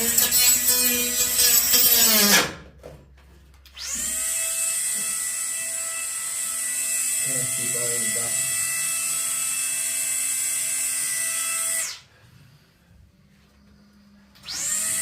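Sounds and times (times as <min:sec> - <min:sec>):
electric power tool motor whine: 0:14.4 - 0:15.0.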